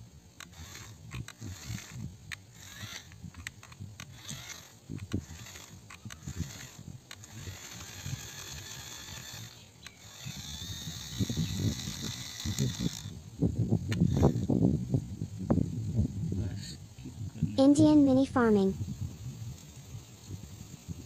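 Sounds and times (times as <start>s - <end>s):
plastic toy tractors rattling: 0.4s - 13.1s, 13.9s - 14.5s.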